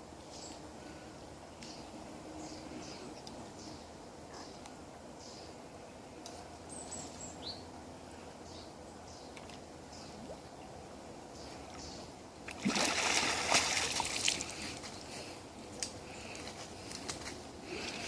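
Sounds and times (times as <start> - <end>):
loud water splashing: 12.5 - 14.7.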